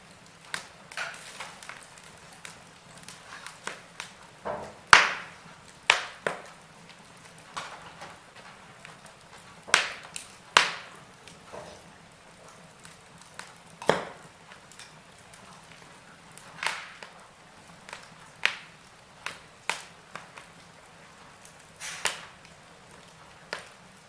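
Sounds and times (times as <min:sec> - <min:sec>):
wood fire crackling and popping: 0:00.0 - 0:24.0
faint hiss: 0:15.8 - 0:24.0.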